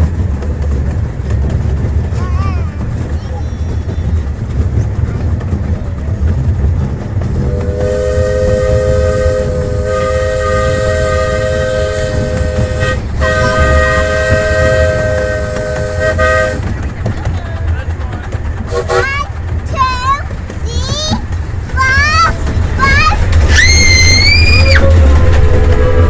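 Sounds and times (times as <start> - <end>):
low rumble of train running: 0.0 - 26.0
steam locomotive chime whistle: 7.4 - 16.7.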